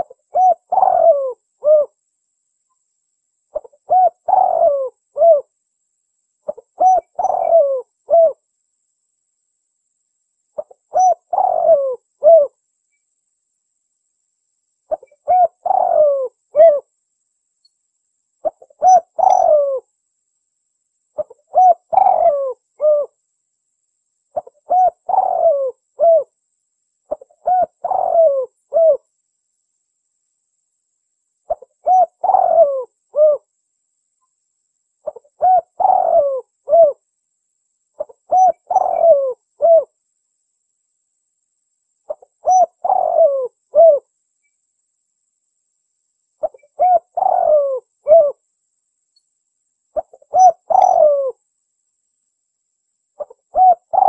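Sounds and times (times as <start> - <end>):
dove cooing: 0.0 - 2.0, 3.5 - 5.5, 6.5 - 8.4, 10.6 - 12.6, 14.9 - 16.9, 18.4 - 19.9, 21.2 - 23.2, 24.4 - 26.3, 27.1 - 29.0, 31.5 - 33.5, 35.0 - 37.0, 38.0 - 40.0, 42.1 - 44.0, 46.4 - 48.4, 50.0 - 51.4, 53.2 - 54.0.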